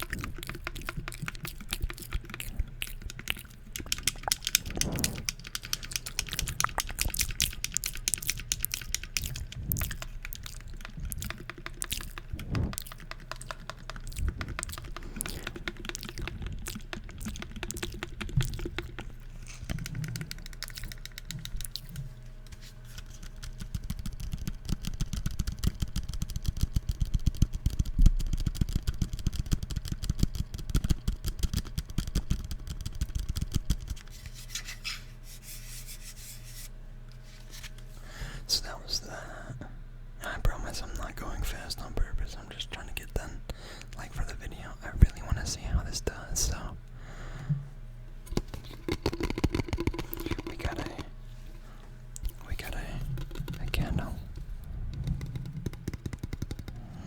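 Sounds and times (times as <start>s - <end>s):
fingers tapping plastic controller: 3.8s - 12.4s, 19.7s - 21.6s, 22.9s - 34.0s, 48.3s - 51.0s, 55.0s - 56.8s.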